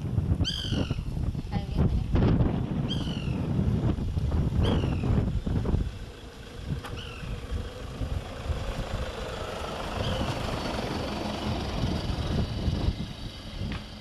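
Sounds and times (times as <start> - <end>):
steady low rumble: 0.0 - 14.0
woodpecker call notes: 0.4 - 1.1, 6.9 - 7.4.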